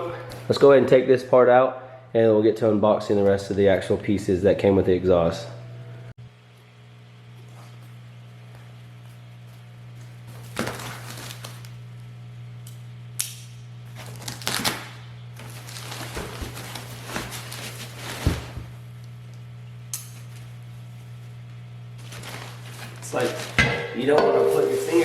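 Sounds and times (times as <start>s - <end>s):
packaging rustling and crinkling: 10.3s - 11.8s, 15.4s - 18.8s, 21.9s - 23.6s
steady low hum: 16.3s - 25.0s.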